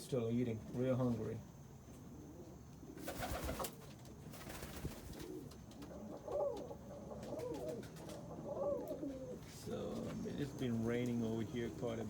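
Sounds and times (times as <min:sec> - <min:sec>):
rustle: 0:01.9 - 0:11.2
pigeons cooing: 0:02.1 - 0:10.7.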